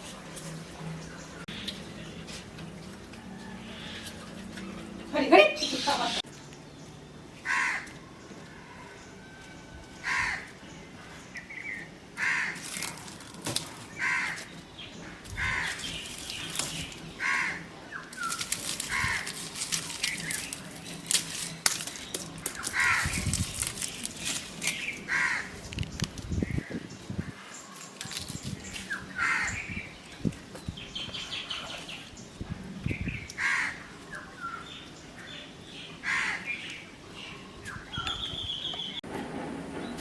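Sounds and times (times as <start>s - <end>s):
crow cawing: 7.4s - 7.9s, 10.0s - 10.5s, 12.2s - 12.6s, 14.0s - 14.4s, 17.2s - 17.6s, 25.1s - 25.5s, 29.2s - 29.5s, 33.4s - 33.8s, 36.0s - 36.5s
rustling: 12.2s - 14.5s, 18.1s - 26.3s.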